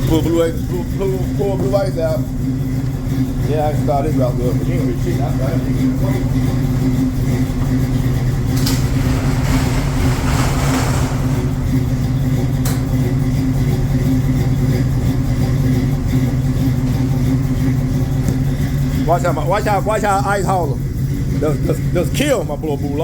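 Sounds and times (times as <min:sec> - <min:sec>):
truck engine idling: 0:00.0 - 0:23.0.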